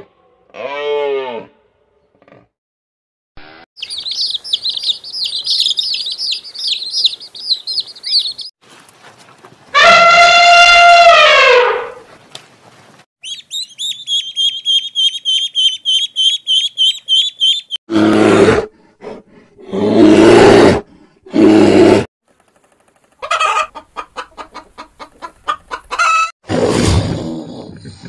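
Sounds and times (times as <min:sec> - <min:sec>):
high animal chirps: 0:03.8 - 0:08.5, 0:13.2 - 0:17.8.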